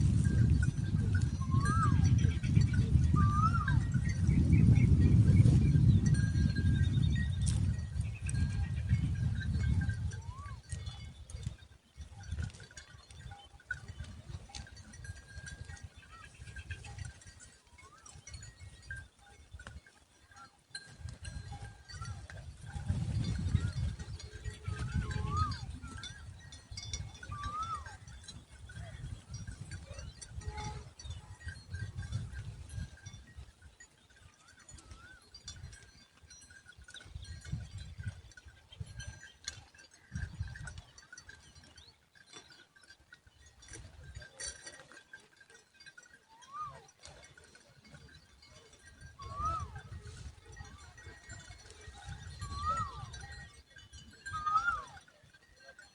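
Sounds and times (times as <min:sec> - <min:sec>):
birds whistling calls: 0:01.3 - 0:04.7, 0:25.0 - 0:25.7, 0:27.2 - 0:27.9
gliding bird calls: 0:03.2 - 0:03.8, 0:27.3 - 0:27.9.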